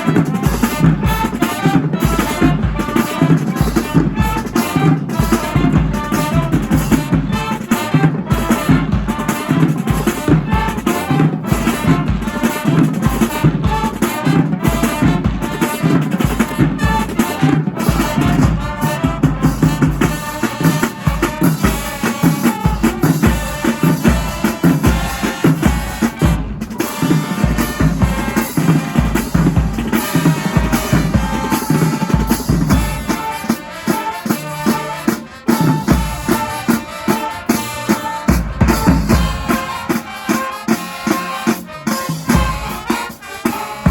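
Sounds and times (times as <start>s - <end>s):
held brass notes: 0.0s - 43.9s
marching band playing: 0.0s - 43.9s
snare drums: 0.0s - 43.9s
bass drums: 17.8s - 33.3s, 35.6s - 40.1s.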